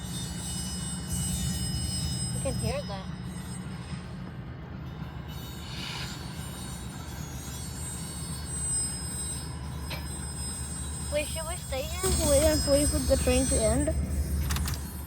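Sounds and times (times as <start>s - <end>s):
train rumbling: 0.0s - 15.0s
hiss: 5.6s - 7.3s.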